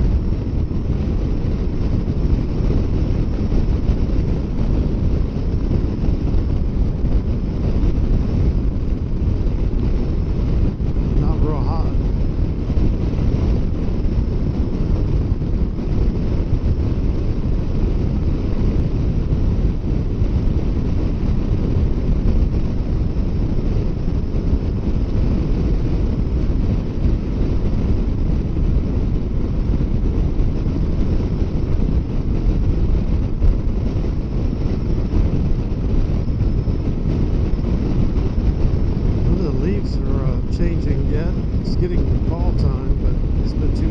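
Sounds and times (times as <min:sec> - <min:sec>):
wind rushing over microphone: 0:00.0 - 0:43.9.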